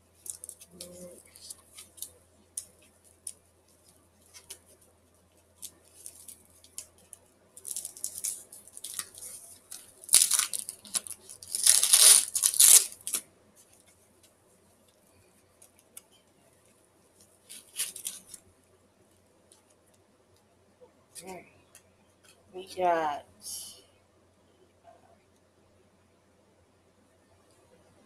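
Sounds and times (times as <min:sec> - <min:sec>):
packaging rustling and crinkling: 0:05.6 - 0:13.2, 0:17.2 - 0:18.4
packaging tearing: 0:07.6 - 0:13.2.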